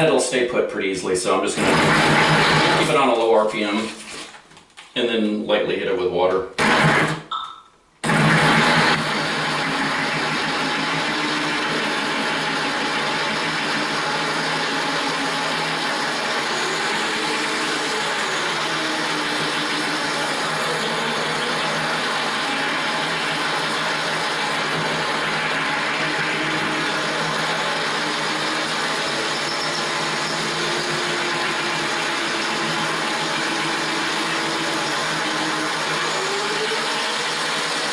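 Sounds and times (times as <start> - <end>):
drill grinding into tile: 1.6 - 3.0, 6.6 - 7.2, 8.0 - 37.9.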